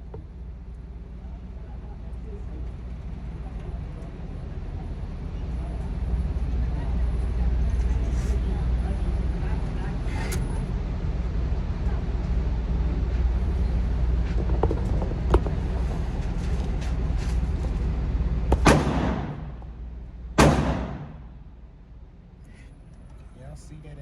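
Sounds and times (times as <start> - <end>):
steady low rumble: 0.0 - 24.0
pistol shots echoing: 18.5 - 19.6, 20.4 - 21.3.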